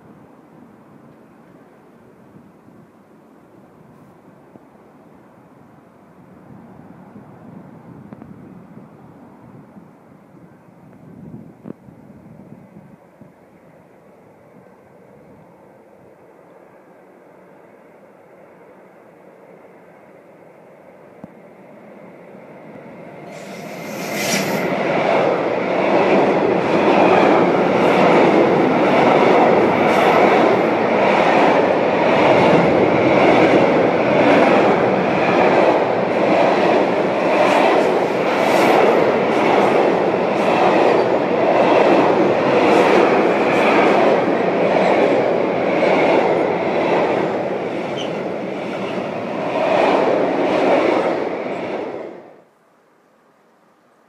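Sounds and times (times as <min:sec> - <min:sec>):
electric locomotive passing: 0:00.0 - 0:52.5
high wheel squeal: 0:23.2 - 0:24.8.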